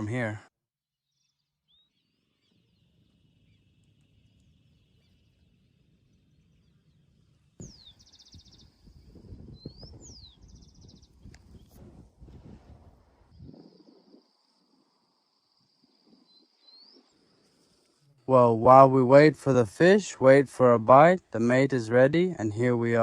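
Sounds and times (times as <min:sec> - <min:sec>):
wind rumble on microphone: 0:07.6 - 0:14.5.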